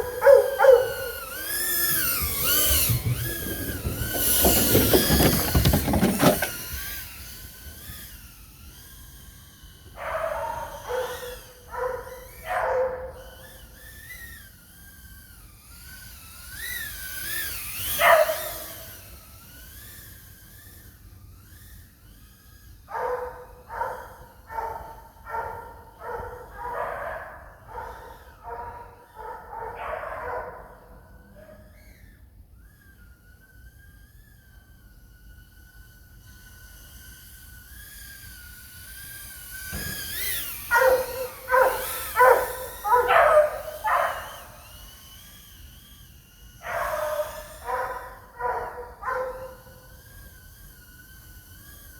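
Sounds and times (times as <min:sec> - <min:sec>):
dogs barking: 0:00.0 - 0:01.3, 0:10.0 - 0:13.2, 0:18.0 - 0:18.8, 0:22.9 - 0:31.5, 0:40.7 - 0:44.6, 0:46.6 - 0:49.8
quadcopter motors whining: 0:00.0 - 0:51.9.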